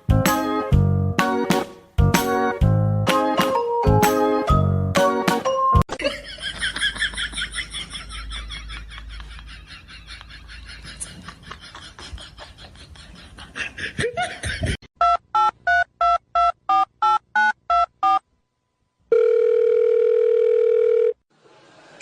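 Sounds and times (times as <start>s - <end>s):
steady dial tone: 19.1s - 21.2s.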